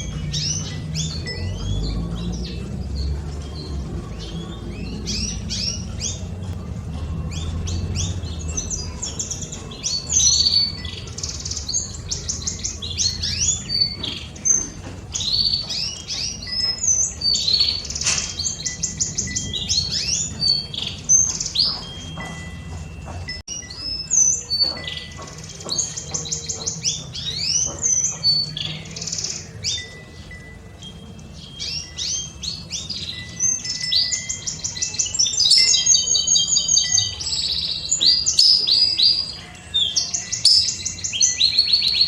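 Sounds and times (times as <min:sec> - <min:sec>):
low rumble of wind or traffic: 0:00.0 - 0:23.6
canaries singing: 0:00.0 - 0:42.0.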